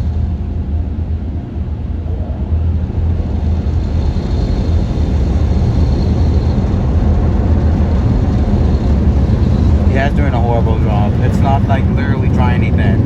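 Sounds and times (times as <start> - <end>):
faint high whine: 8.3 - 13.0.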